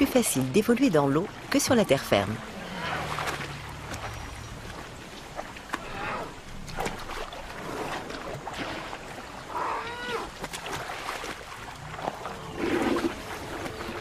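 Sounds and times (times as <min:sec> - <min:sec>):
water splashing: 0:00.0 - 0:14.0
elephants calling: 0:02.2 - 0:04.5, 0:05.7 - 0:06.4, 0:09.4 - 0:10.4.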